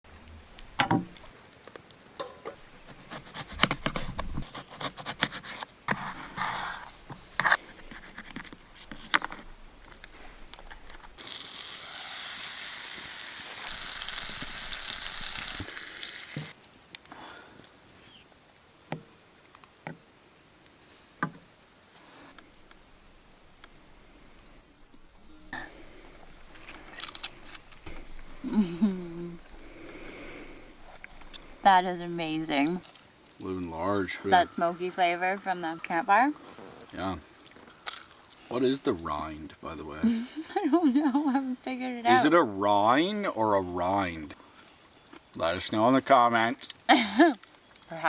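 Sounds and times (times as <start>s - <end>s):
food sizzling: 11.2s - 16.6s.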